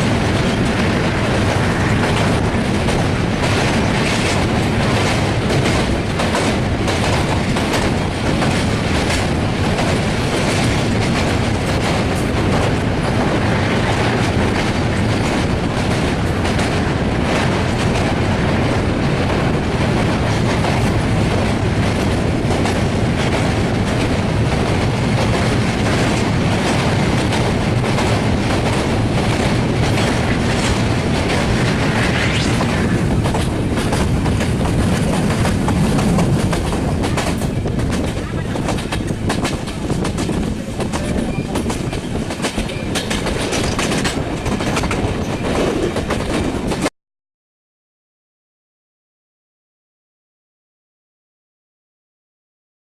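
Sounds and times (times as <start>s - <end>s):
train rumbling over steel bridge: 0.0s - 46.9s
wheels clacking over rail joints: 33.2s - 46.9s.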